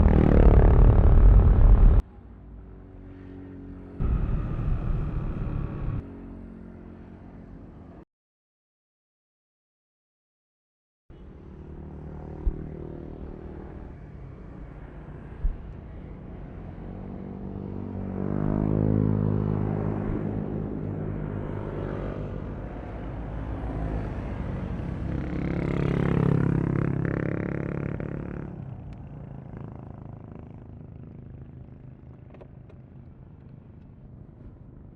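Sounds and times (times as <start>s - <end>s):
scooter engine accelerating: 0.0s - 2.0s.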